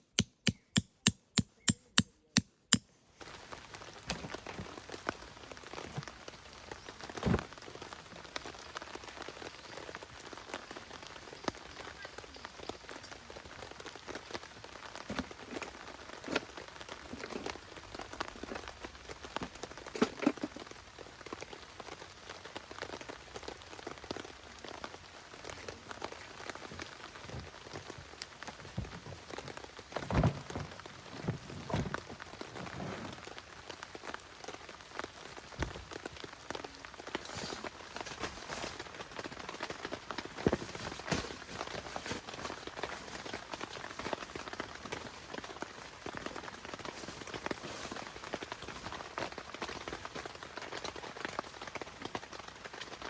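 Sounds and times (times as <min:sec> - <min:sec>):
sharp knocks: 0:00.0 - 0:02.1
rain falling: 0:03.3 - 0:53.0.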